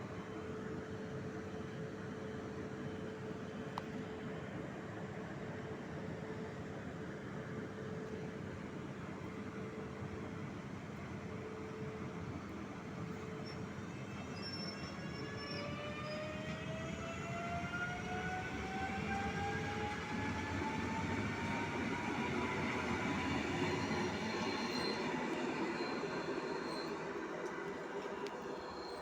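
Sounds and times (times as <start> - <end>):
train whine rising in pitch: 11.2 - 29.0.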